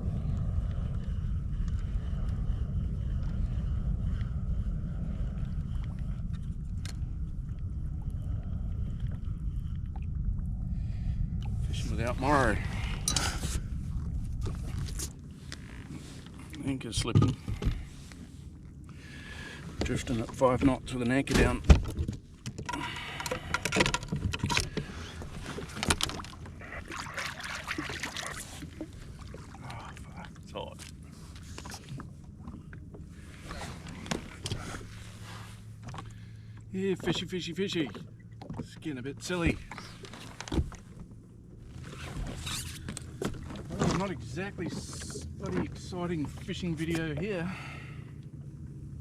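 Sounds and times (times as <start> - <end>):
low rumble: 0.0 - 49.0
water slapping against hull: 11.4 - 47.5.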